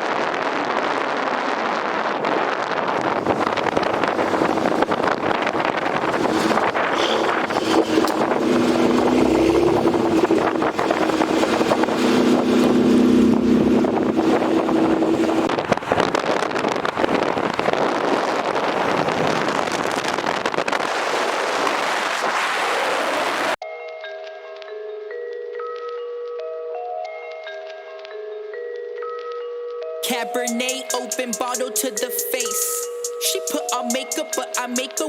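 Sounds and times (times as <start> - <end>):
road and wind noise: 0.0 - 23.6
car engine drone: 2.4 - 23.2.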